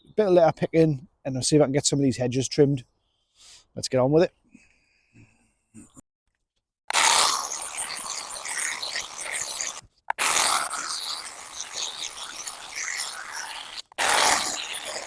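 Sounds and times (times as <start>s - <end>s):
hand tool scraping mud and leaves: 6.9s - 15.0s.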